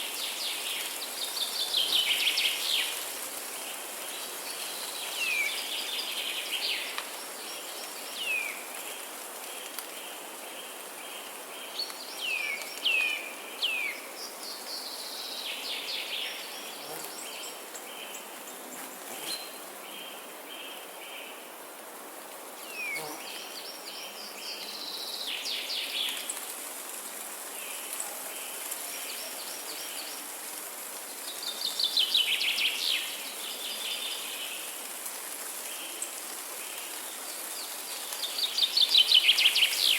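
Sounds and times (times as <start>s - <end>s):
outdoor hiss: 0.0s - 39.9s
high insect buzz: 22.8s - 23.5s.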